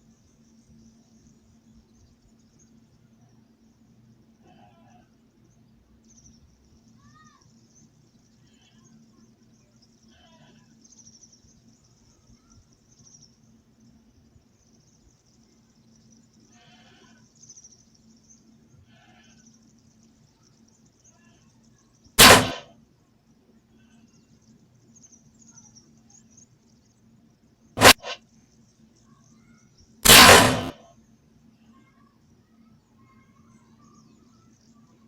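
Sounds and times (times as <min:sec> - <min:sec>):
insects buzzing faintly: 0:00.0 - 0:35.0
loud gunshots: 0:22.2 - 0:22.7, 0:27.8 - 0:28.2, 0:30.0 - 0:30.8.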